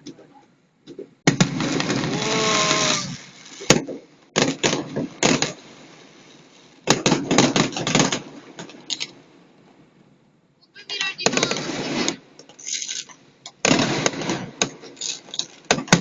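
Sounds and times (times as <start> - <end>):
fireworks bangs and crackles: 0.8 - 9.9, 10.8 - 16.0.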